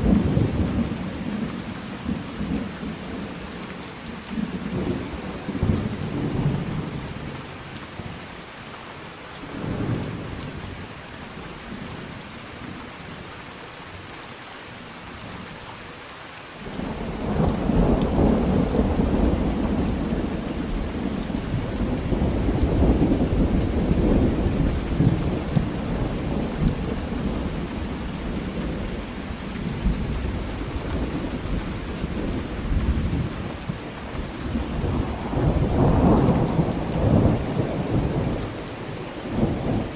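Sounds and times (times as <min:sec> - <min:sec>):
steady rain: 0:00.0 - 0:39.9
thunder rumbling: 0:16.7 - 0:39.9.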